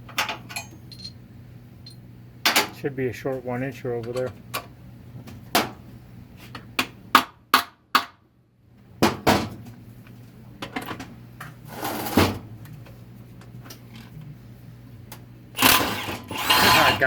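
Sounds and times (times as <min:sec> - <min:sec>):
metal tools clacking: 0:00.2 - 0:01.2
metal rasp: 0:15.6 - 0:17.0.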